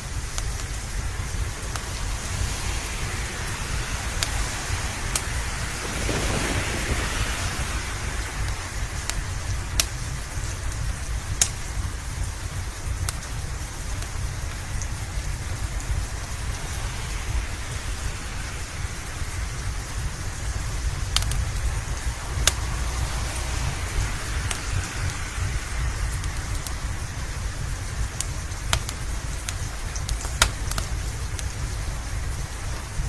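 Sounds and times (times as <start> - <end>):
steady rain: 0.0 - 33.0
wood fire crackling: 0.0 - 33.0
low rumble: 5.7 - 12.4.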